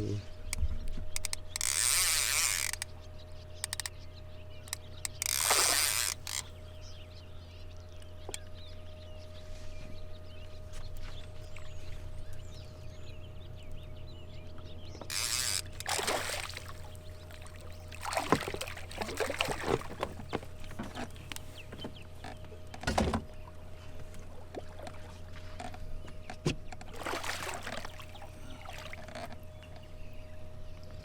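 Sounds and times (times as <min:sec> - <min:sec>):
water splashing: 0:15.1 - 0:20.2, 0:26.9 - 0:29.2.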